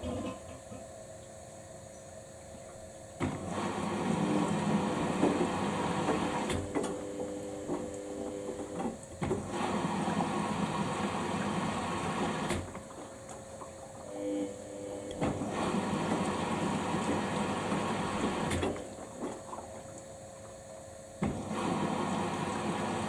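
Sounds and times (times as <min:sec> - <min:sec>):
washing machine motor whining: 0:03.2 - 0:19.3, 0:21.2 - 0:23.0.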